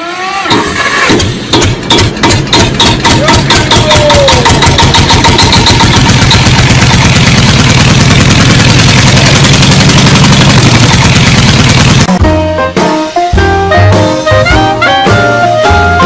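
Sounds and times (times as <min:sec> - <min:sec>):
engine running: 0:00.0 - 0:12.2.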